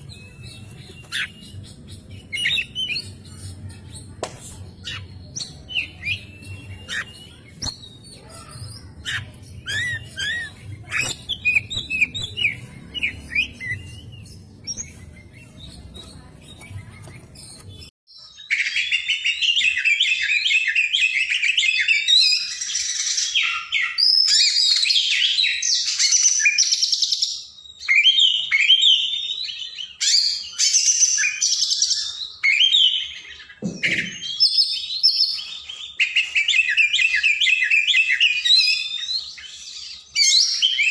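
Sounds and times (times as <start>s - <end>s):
magpie-robin singing: 0.0s - 17.9s.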